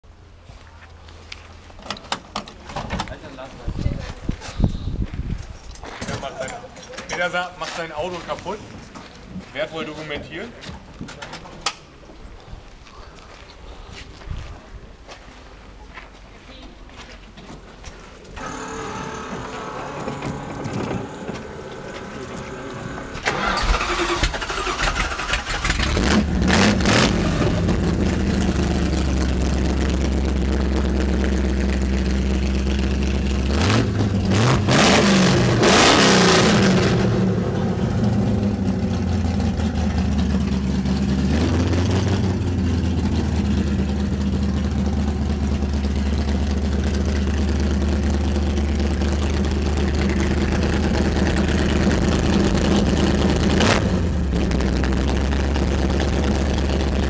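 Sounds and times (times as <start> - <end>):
car engine idling and revving: 18.3 - 57.0.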